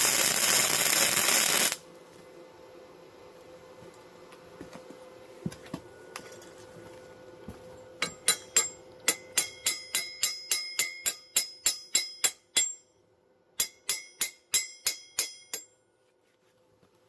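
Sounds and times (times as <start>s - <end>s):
hammer ringing on steel: 8.0s - 13.0s, 13.6s - 15.8s.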